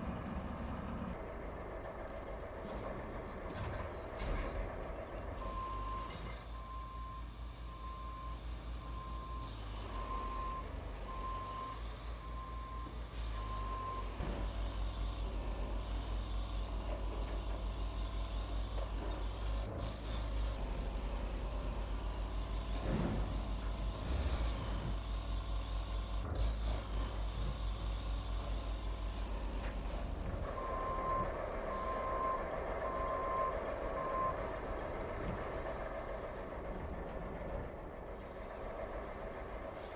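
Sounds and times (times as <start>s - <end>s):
truck engine rumble: 0.0s - 39.9s
truck reversing alarm beeping: 1.2s - 14.2s, 30.4s - 36.6s, 38.3s - 39.9s.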